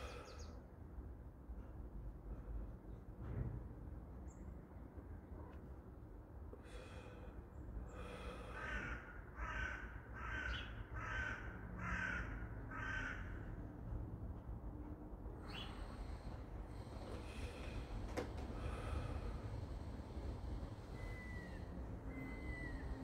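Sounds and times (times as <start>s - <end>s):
bird calling: 20.9s - 23.0s.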